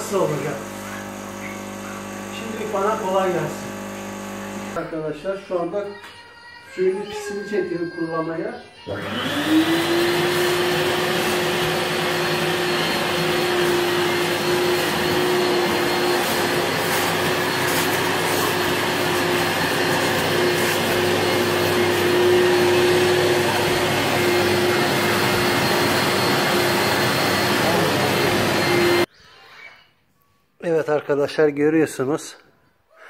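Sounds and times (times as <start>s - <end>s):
suction motor whining: 0.0s - 4.8s, 8.9s - 29.1s.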